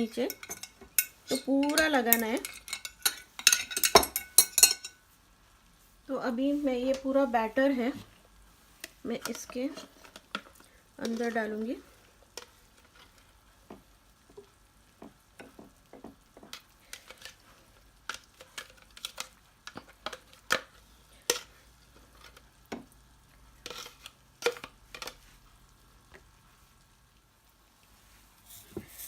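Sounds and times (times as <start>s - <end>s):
clinks and taps on glass dish: 0.3s - 5.0s
spatula scraping batter: 23.6s - 25.4s, 28.5s - 29.0s.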